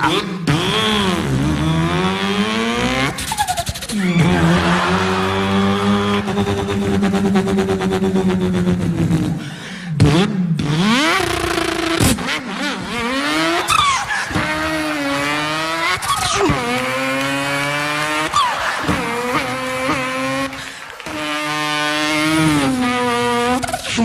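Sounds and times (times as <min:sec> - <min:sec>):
man imitating racing car engine: 0:00.0 - 0:24.0.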